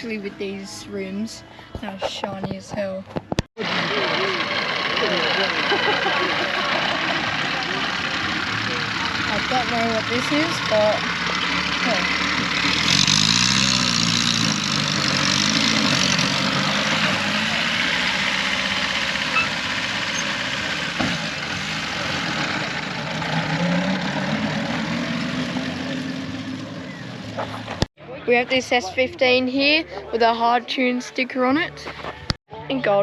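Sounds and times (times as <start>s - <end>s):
vehicle engine idling: 3.6s - 27.9s.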